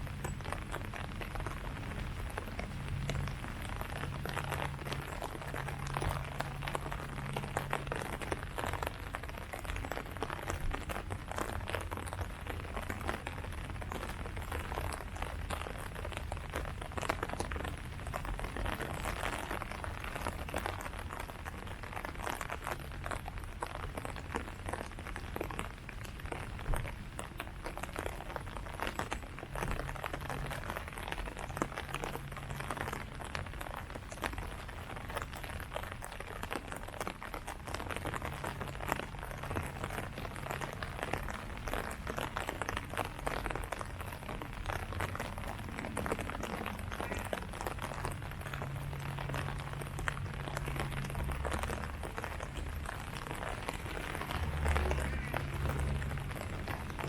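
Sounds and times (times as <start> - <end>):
rain falling on leaves: 0.0 - 57.0
low rumble: 45.2 - 57.0.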